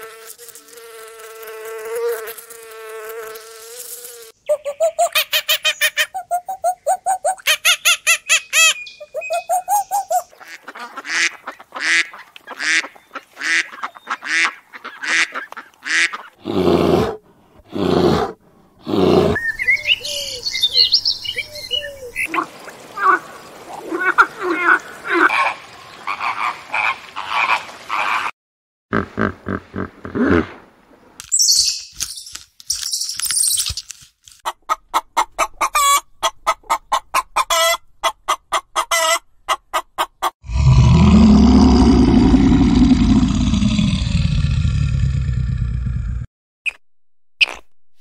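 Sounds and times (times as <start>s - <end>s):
high chirping: 4.4s - 10.3s, 31.3s - 33.8s.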